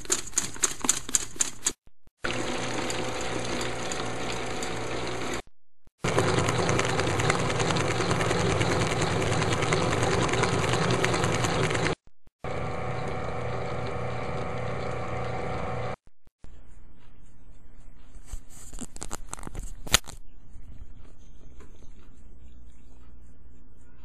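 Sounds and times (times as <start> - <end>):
electric mixer whirring: 2.2 - 16.0.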